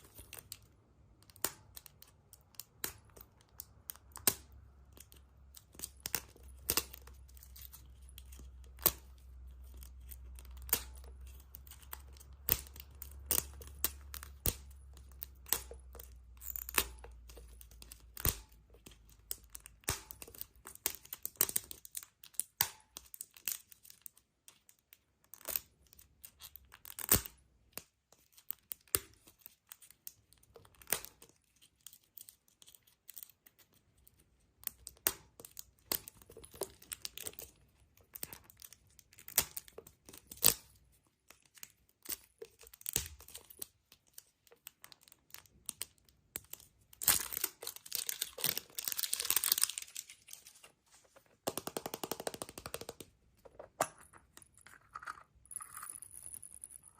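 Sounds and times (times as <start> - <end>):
foil crinkling and tearing: 47.0 - 50.6.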